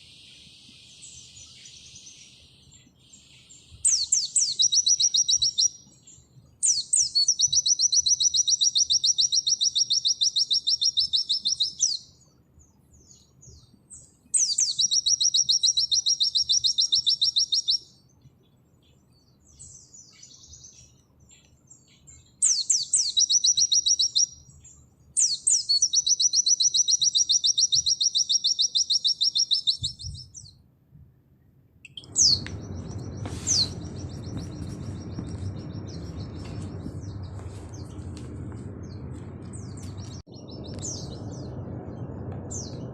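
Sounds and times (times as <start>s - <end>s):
background hiss: 0.0s - 6.7s
bird singing high trills: 0.0s - 12.2s, 13.0s - 18.1s, 19.2s - 30.6s, 31.9s - 38.2s, 38.8s - 42.9s
short bird chirps: 0.0s - 12.2s, 13.0s - 18.1s, 18.9s - 30.6s, 31.8s - 38.1s.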